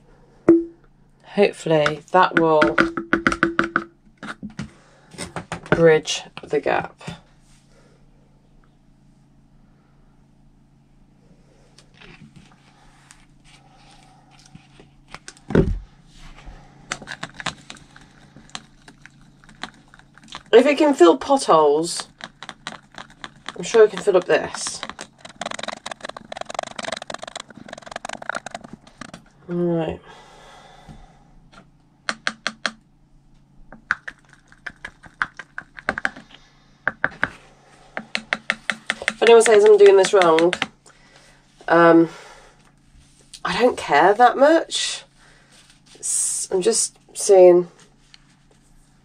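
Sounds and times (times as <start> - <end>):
steady low hum: 0.0 - 49.0
plastic bottle and cup clicking: 22.0 - 29.2, 33.7 - 37.3, 38.0 - 40.7.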